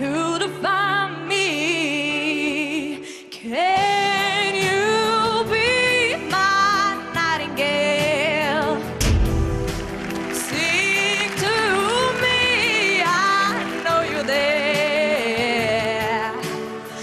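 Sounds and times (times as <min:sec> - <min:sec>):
person singing a pop ballad: 0:00.0 - 0:17.0
instrumental backing: 0:03.8 - 0:17.0.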